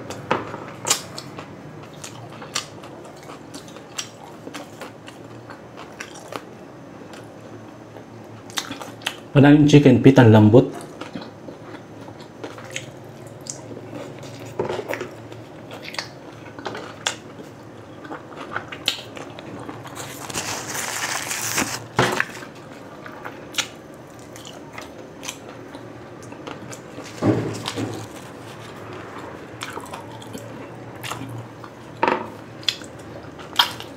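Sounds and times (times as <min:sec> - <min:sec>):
wet chewing: 0:10.8 - 0:15.0, 0:29.6 - 0:31.8.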